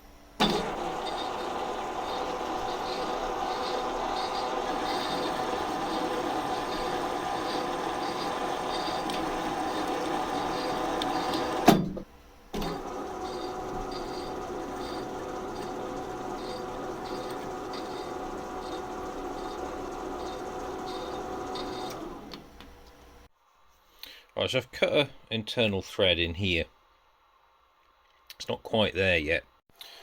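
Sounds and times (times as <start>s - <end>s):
workshop machine running: 0.2s - 23.3s.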